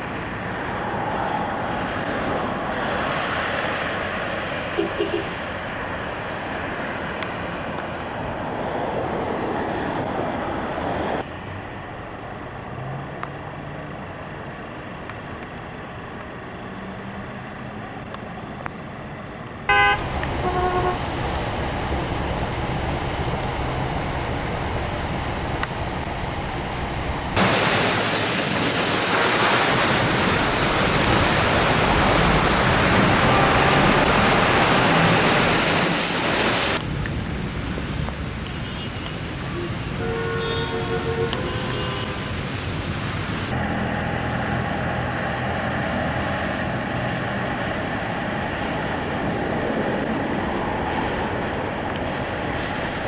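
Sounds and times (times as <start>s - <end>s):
rushing water from downpour: 0.0s - 11.4s, 19.7s - 43.6s
cars on wet streets: 0.0s - 53.0s
car horn toot: 4.8s - 5.3s, 19.7s - 21.0s, 33.1s - 34.7s, 39.6s - 42.2s.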